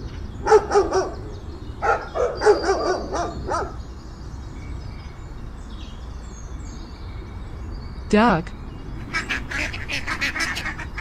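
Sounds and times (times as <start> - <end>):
dog barking: 0.4 - 1.2, 1.8 - 3.8.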